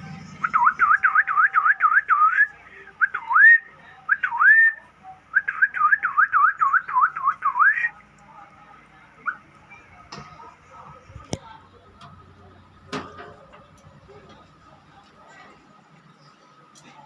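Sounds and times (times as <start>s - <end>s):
bird whistling: 0.4s - 7.9s, 9.2s - 9.8s.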